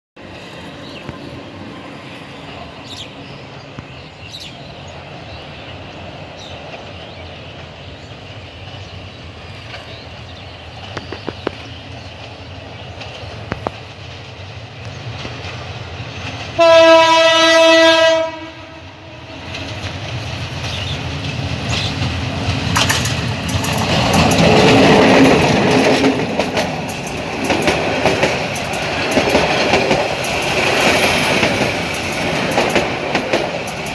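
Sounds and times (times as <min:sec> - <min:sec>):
train wheels rattling on rails: 0:00.2 - 0:18.4, 0:19.2 - 0:33.9
diesel locomotive horn: 0:16.6 - 0:19.8.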